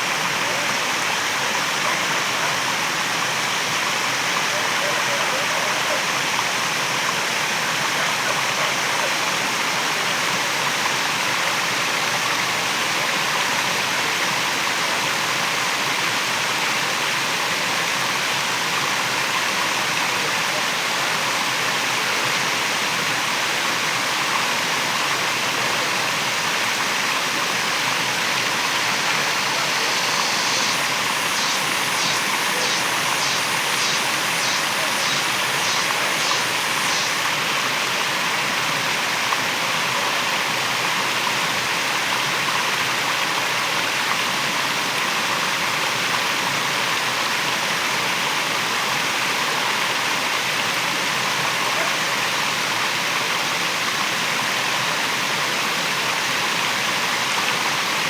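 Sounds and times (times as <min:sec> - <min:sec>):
waterfall rushing: 0:26.7 - 0:39.6
high rhythmic pulsing: 0:28.6 - 0:37.4.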